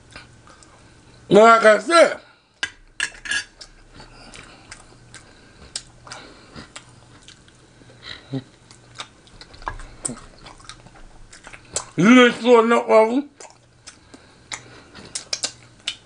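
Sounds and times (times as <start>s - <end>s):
metal spoon clinking on plate: 3.0s - 3.5s
wet chewing: 3.6s - 12.0s, 13.3s - 16.0s.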